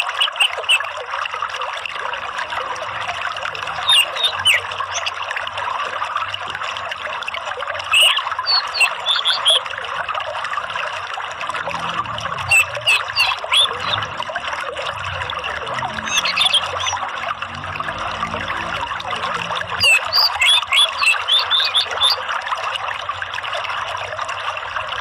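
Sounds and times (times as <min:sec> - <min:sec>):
water trickling: 0:00.0 - 0:25.0
high bird chirps: 0:03.8 - 0:05.1, 0:07.9 - 0:09.6, 0:12.5 - 0:14.1, 0:16.0 - 0:17.0, 0:19.8 - 0:22.2.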